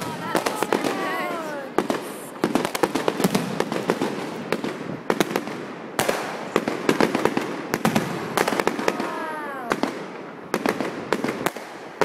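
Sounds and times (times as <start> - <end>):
fireworks bangs: 0.0 - 12.0
fireworks crackle: 0.0 - 12.0.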